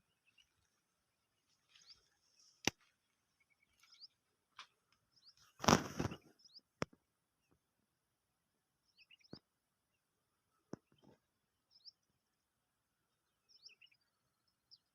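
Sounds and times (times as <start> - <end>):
small birds chirping: 0.0 - 7.8, 8.8 - 14.9.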